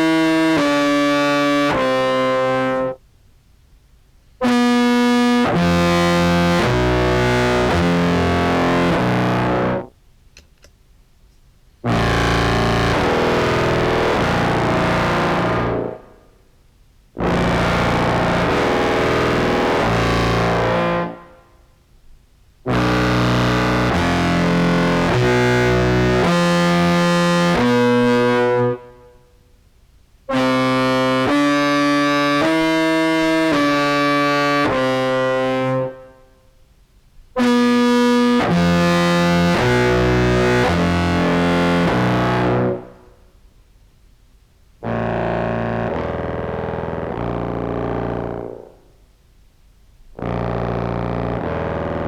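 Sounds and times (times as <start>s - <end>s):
distorted contrabass clarinet: 0.0s - 3.0s, 4.4s - 9.9s, 11.9s - 16.1s, 17.2s - 21.3s, 22.7s - 29.0s, 30.3s - 36.1s, 37.4s - 43.0s, 44.8s - 48.8s, 50.2s - 52.0s.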